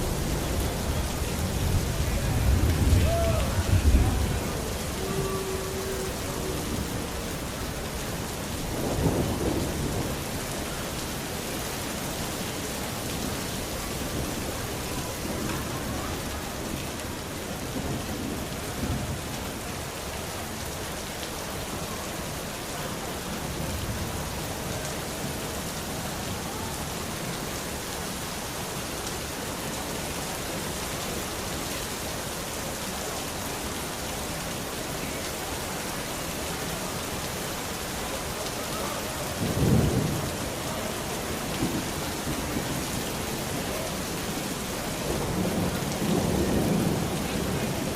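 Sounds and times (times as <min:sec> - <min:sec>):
thunder rumbling: 0:00.0 - 0:11.0
steady rain hissing: 0:00.0 - 0:47.9.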